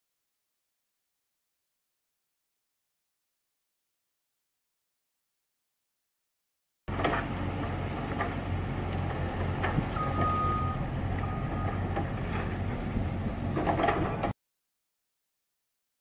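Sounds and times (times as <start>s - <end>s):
truck engine running: 6.9s - 14.3s
high beeps: 10.0s - 11.8s.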